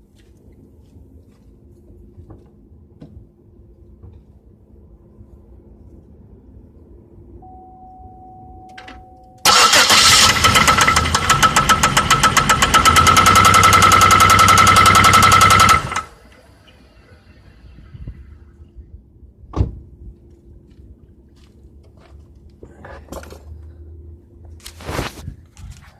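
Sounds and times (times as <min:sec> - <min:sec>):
car engine with knocking: 0:10.3 - 0:16.1.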